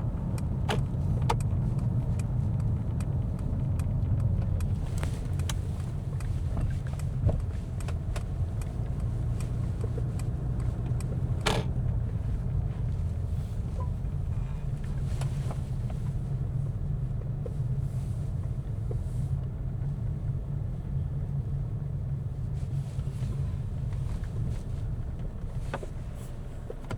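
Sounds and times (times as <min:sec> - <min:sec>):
low rumble of tyres: 0:00.0 - 0:26.9
faint ticks: 0:00.2 - 0:13.0.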